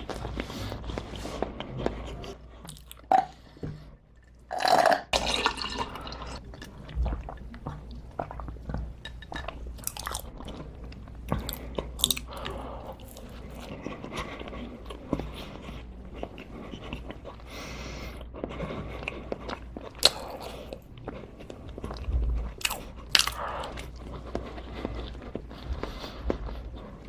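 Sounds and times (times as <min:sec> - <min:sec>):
crunchy bites and chewing: 0:21.7 - 0:25.6.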